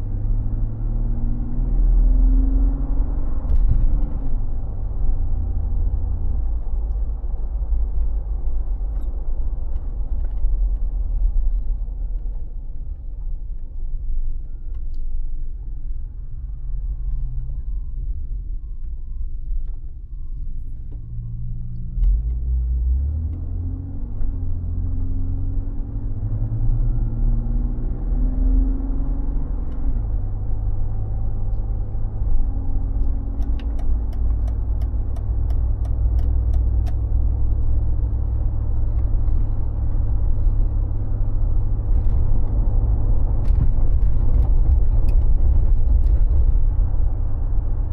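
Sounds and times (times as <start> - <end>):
car engine rumbling: 0.0 - 47.9.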